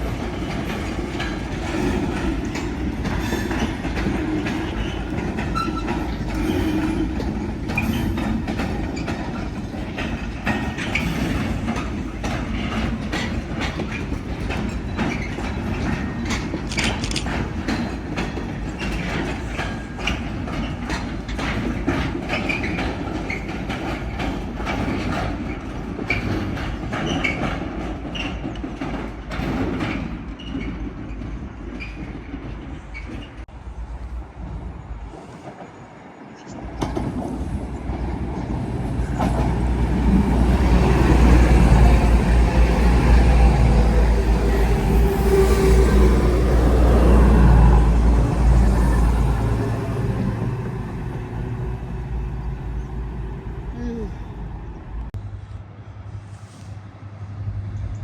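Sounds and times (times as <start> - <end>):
wheels clicking over rail joints: 0.0 - 33.5
train passing: 0.0 - 58.0.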